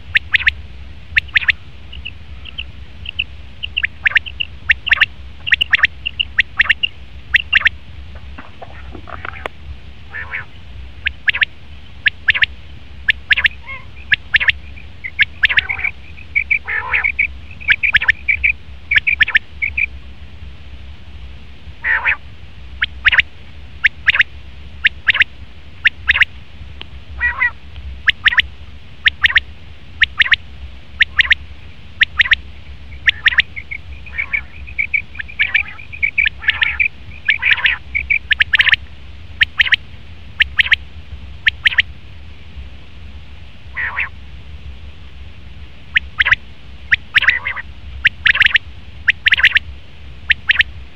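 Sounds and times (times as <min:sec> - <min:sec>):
quail calling: 0:00.0 - 0:07.8, 0:08.4 - 0:09.5, 0:10.1 - 0:19.9, 0:21.8 - 0:22.2, 0:22.8 - 0:26.3, 0:27.2 - 0:29.4, 0:30.0 - 0:30.4, 0:31.0 - 0:31.4, 0:32.0 - 0:38.8, 0:39.4 - 0:39.8, 0:40.4 - 0:40.8, 0:41.4 - 0:41.9, 0:43.7 - 0:44.2, 0:45.9 - 0:49.6, 0:50.3 - 0:50.7
steady low hum: 0:00.0 - 0:50.9.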